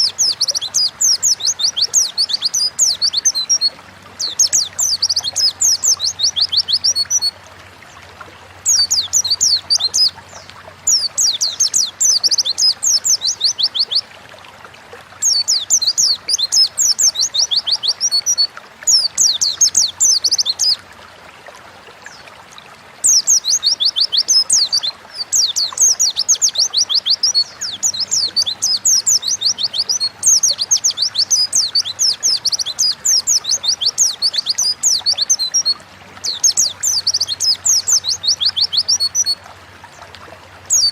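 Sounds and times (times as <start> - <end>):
bird twittering song: 0.0 - 7.3, 8.6 - 14.1, 15.2 - 20.8, 23.0 - 40.1, 40.7 - 40.9.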